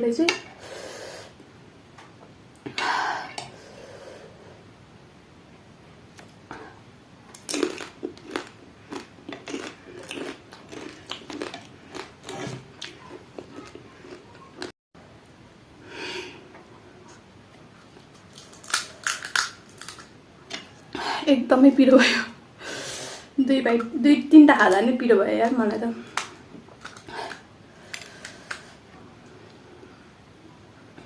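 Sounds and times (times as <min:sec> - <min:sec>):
crisp shells crunching: 0:18.1 - 0:20.1.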